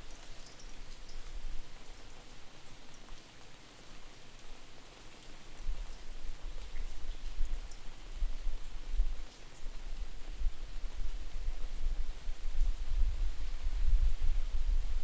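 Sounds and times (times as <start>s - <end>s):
steady rain: 0.0s - 15.0s
wind buffeting microphone: 10.0s - 15.0s.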